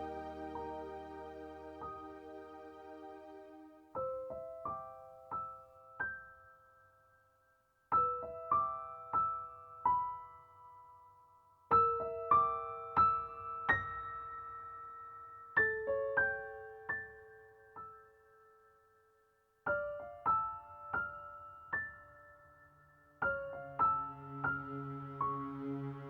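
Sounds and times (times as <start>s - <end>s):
slow piano melody: 0.0s - 6.6s, 19.7s - 26.0s.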